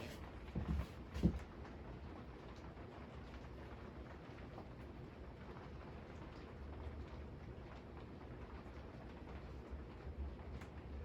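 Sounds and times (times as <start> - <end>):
ceiling fan air rush and hum: 0.0 - 2.9
faint ticks of wobbling fan: 1.5 - 11.0.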